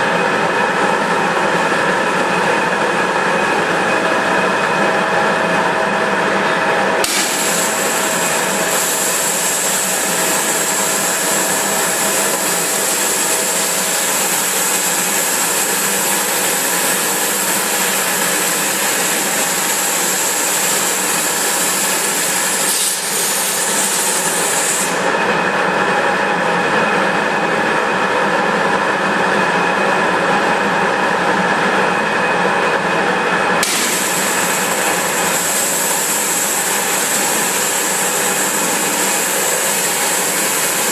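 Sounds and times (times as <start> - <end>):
low dull machine noise: 0.0 - 40.9
high-pressure water jet hissing: 7.0 - 25.1, 33.6 - 40.9.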